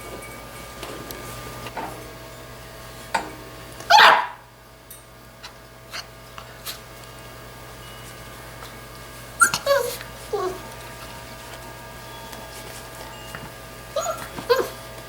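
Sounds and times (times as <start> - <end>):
puppy barking: 3.9 - 4.4, 9.4 - 10.7, 14.0 - 14.8.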